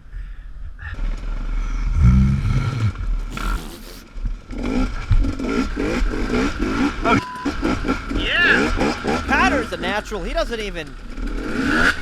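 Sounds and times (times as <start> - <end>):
dirt bike engine revving: 3.3 - 4.1.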